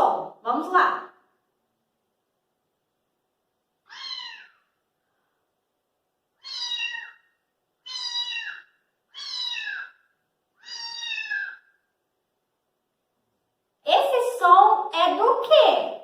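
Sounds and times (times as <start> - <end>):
cat meowing: 3.8 - 4.7, 6.4 - 10.0, 10.6 - 11.8.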